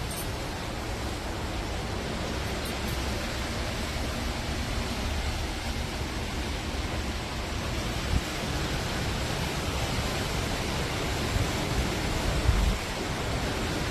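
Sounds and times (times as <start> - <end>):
strong wind across microphone: 3.0 - 13.9.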